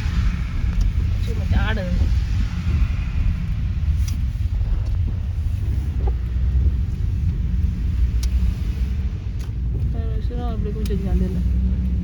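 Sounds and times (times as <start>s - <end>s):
car road and engine rumble: 0.0s - 12.0s
faint clicks: 9.3s - 11.1s.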